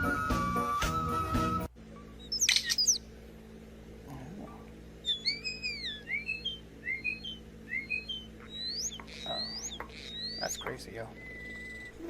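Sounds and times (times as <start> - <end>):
bird whistling notes: 0.0 - 3.0, 5.0 - 12.0
bird chirping: 2.1 - 3.1, 5.0 - 12.0.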